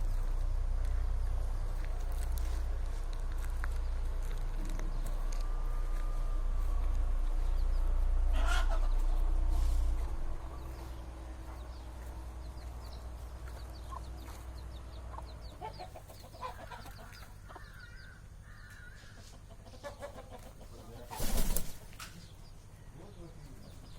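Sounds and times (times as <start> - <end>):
low rumble: 0.0 - 15.6
fowl calling and clucking: 8.2 - 9.5, 15.0 - 21.3.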